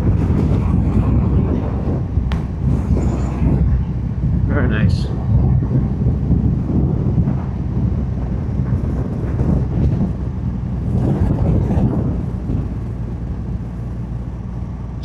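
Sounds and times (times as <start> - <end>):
wind noise: 0.0 - 15.0.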